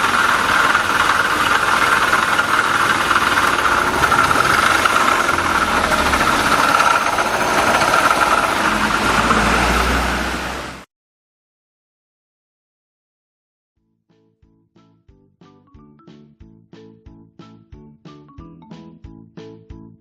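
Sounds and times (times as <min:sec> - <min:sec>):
high transmission whine: 0:00.0 - 0:10.8
small motorcycle engine running: 0:00.0 - 0:10.8.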